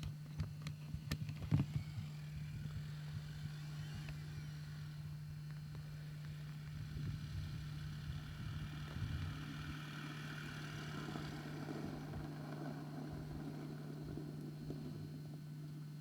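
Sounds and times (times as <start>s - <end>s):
car engine running: 7.2s - 16.0s.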